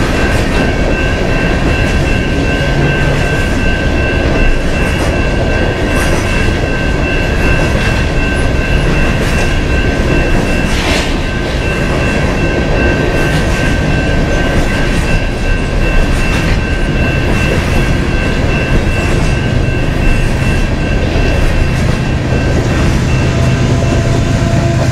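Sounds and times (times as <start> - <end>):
high whine: 0.0 - 24.9
steel wheels rumbling on rail: 0.0 - 24.9.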